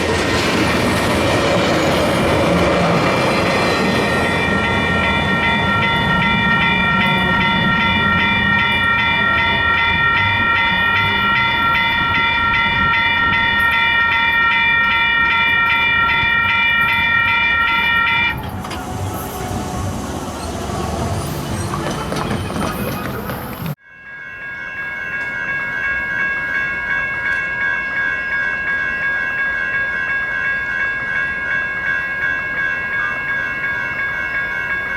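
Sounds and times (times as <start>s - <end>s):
passing train rumble: 0.0s - 23.8s.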